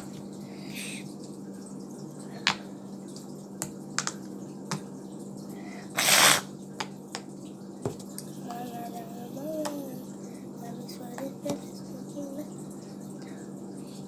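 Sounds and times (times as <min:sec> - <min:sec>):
steady low hum: 0:07.9 - 0:14.0.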